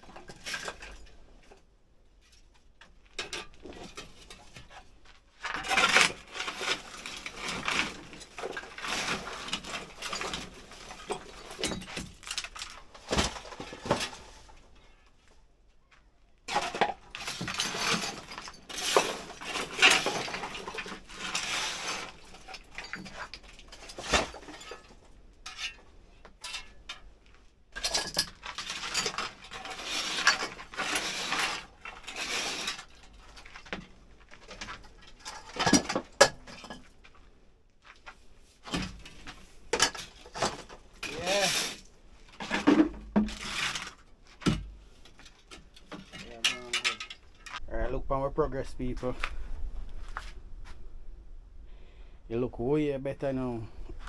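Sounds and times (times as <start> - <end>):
clattering of pots and tins: 0.1 - 1.2, 5.4 - 15.0, 16.5 - 27.0, 27.7 - 37.0, 38.6 - 47.6.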